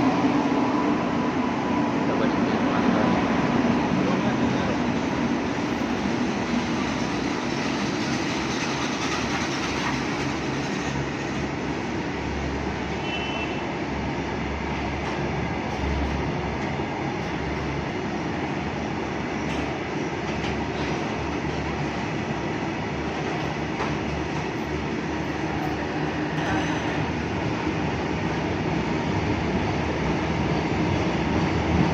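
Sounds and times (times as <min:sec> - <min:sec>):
freight train wheels on rails: 0:00.0 - 0:31.9.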